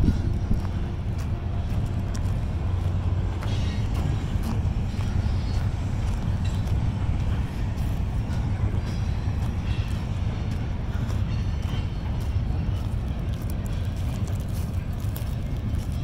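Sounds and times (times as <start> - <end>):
train rumbling over a bridge: 0.0 - 16.0.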